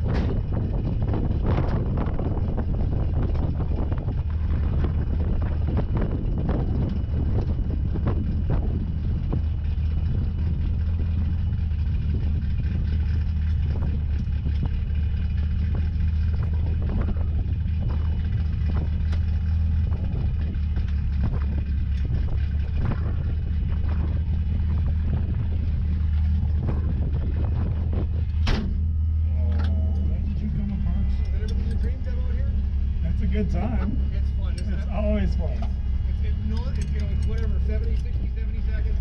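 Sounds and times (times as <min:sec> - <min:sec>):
car engine droning: 0:00.0 - 0:39.0
light clicks and rattles: 0:36.5 - 0:38.5.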